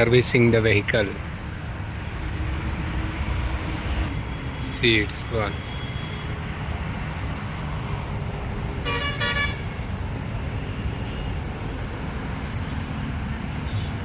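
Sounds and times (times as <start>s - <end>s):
crickets chirping: 0.0s - 14.0s
vehicle horn toots: 8.8s - 9.8s.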